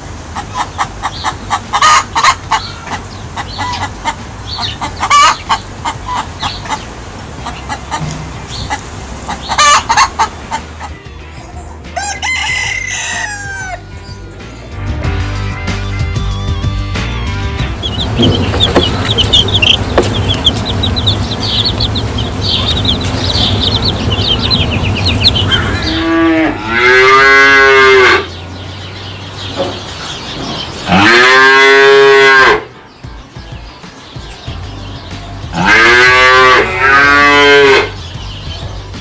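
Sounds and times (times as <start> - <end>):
high-pitched chirping: 17.6 - 26.1
cattle mooing: 17.6 - 28.3, 30.9 - 32.6, 35.6 - 37.9.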